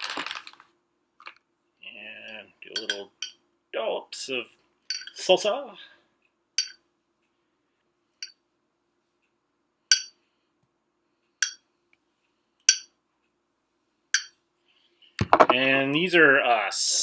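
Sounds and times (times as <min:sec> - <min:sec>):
spoon clinking against jar: 0:02.8 - 0:03.4, 0:04.9 - 0:05.2.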